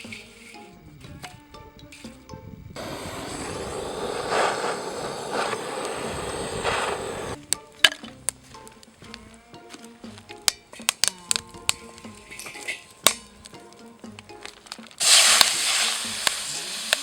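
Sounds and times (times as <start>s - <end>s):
food sizzling in a wok: 2.8s - 7.4s, 15.0s - 17.0s.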